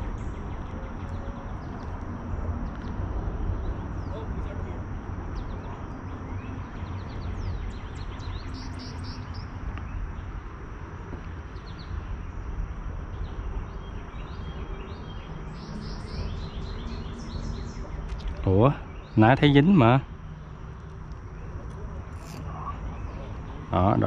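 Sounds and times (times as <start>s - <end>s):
low outdoor rumble: 0.0s - 24.0s
small birds chirping: 0.0s - 24.0s.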